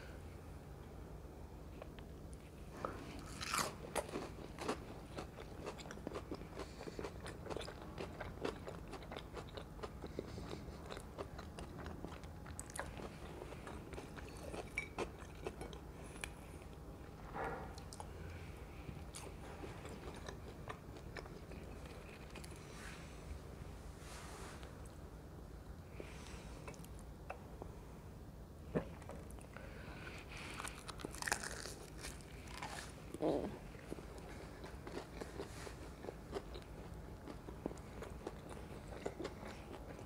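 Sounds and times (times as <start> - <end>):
crunchy fried snack chewing: 3.2 - 15.7, 30.3 - 33.1, 33.9 - 40.0.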